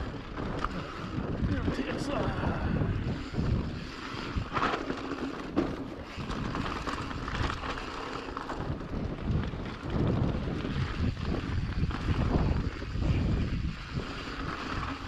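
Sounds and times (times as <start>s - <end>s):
bike tyre noise on dirt: 0.0s - 15.0s
wind on camera microphone: 0.0s - 15.0s
bike knocking over rough ground: 3.4s - 13.0s.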